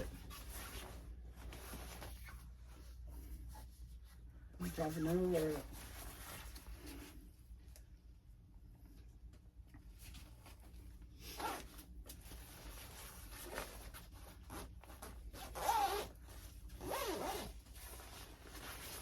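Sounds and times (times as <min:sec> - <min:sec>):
clothing zipper being zipped: 0:11.3 - 0:11.8, 0:13.3 - 0:16.2, 0:16.8 - 0:19.0.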